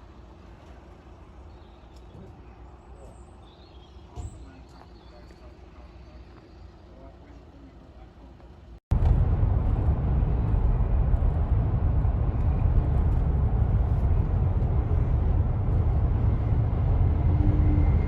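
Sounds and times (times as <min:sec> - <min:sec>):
vehicle engine rumbling: 0:05.4 - 0:18.0.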